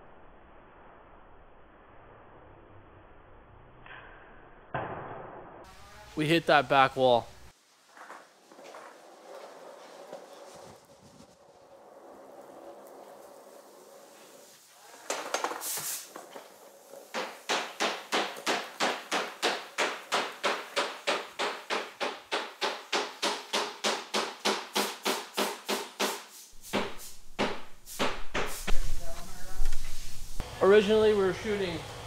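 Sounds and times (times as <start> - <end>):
footsteps on hard floor: 26.6 - 30.4.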